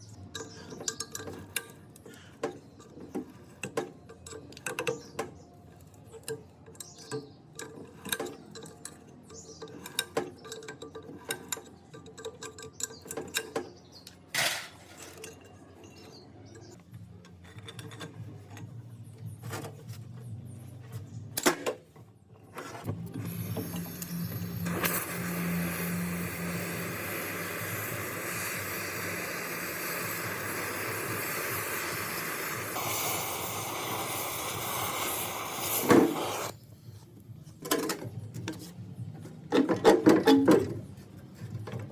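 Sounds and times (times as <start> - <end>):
small metal clinks and taps: 5.7 - 14.2
motor-driven tool humming and hissing: 23.2 - 36.5.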